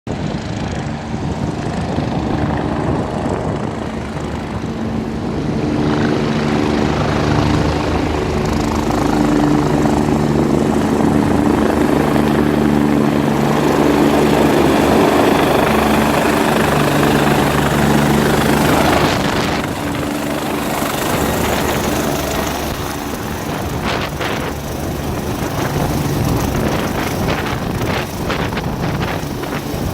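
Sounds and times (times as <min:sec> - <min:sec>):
helicopter engine and rotor: 0:00.1 - 0:29.9.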